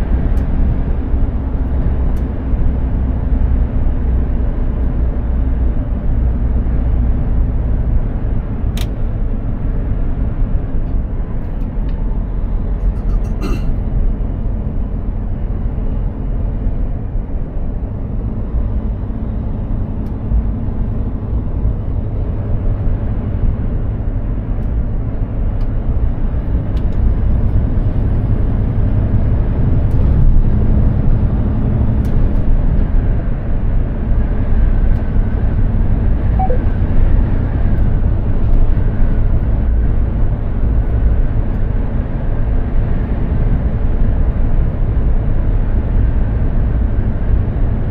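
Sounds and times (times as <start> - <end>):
truck engine and road rumble: 0.0 - 47.9.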